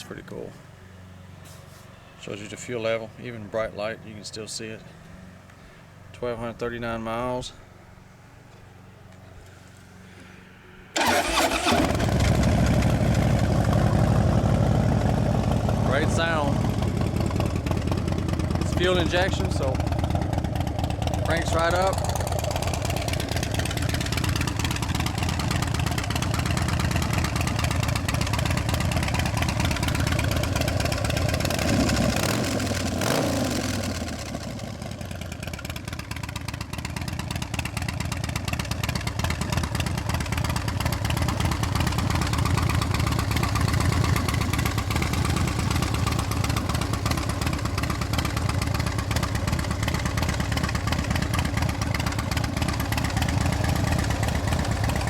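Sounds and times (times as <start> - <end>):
motorcycle engine idling: 11.0 - 55.0.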